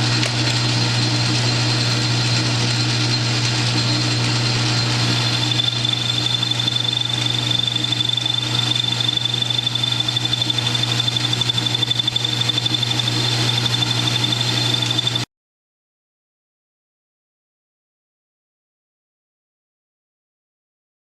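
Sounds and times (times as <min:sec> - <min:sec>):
high-pitched cutting whine: 0:00.0 - 0:15.3
lathe motor hum: 0:00.0 - 0:15.3.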